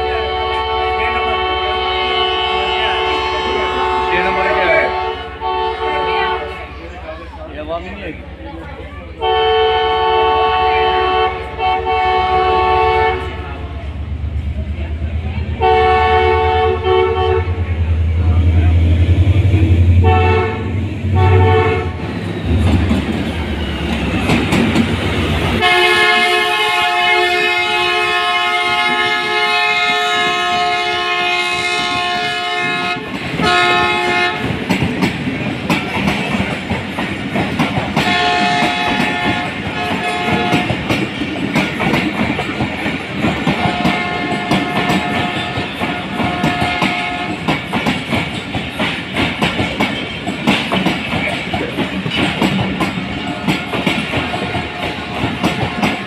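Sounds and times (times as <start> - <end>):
train horn blasts: 0.0 - 6.7, 9.2 - 13.6, 15.6 - 17.8, 19.7 - 22.1, 25.6 - 34.6, 38.0 - 41.0, 43.5 - 47.6, 53.1 - 56.0
deep locomotive rumble: 0.0 - 56.0
train wheels clattering over rail joints: 22.0 - 27.0, 27.8 - 56.0.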